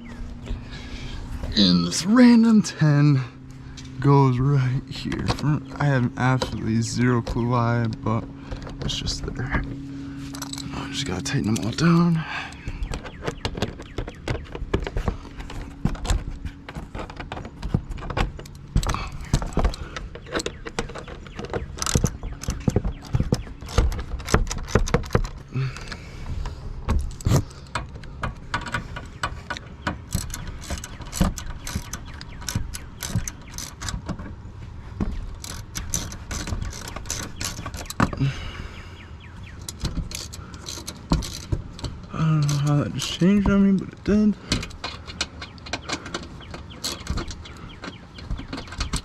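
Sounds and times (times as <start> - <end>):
small metallic knocks and rattles: 0.0 - 49.0
ratchet wrench clicking: 30.0 - 34.0, 35.2 - 38.0.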